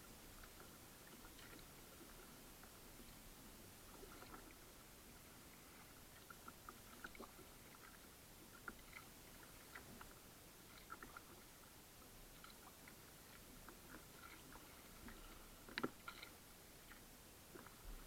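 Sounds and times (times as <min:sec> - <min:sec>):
low hiss: 0:00.0 - 0:18.0
paddle drips and splashes: 0:00.3 - 0:03.2, 0:03.9 - 0:18.0.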